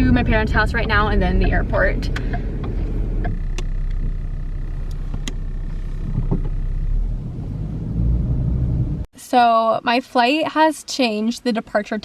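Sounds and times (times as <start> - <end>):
engine and road rumble: 0.0 - 9.1.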